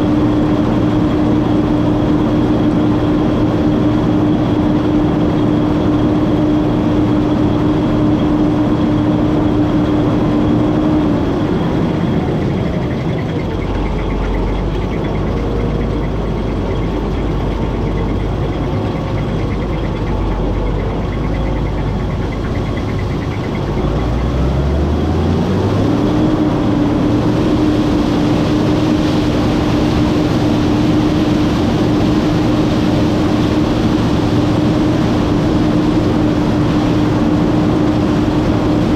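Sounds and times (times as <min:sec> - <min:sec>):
combine harvester whining: 0:00.0 - 0:38.9
deep machine rumble: 0:00.0 - 0:38.9.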